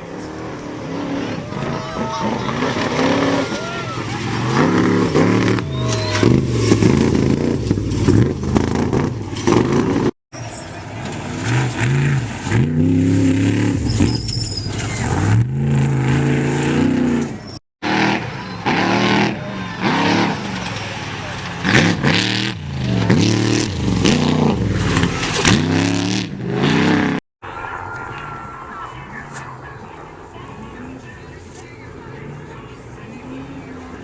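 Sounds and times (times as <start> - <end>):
race truck engines revving: 0.0 - 34.0.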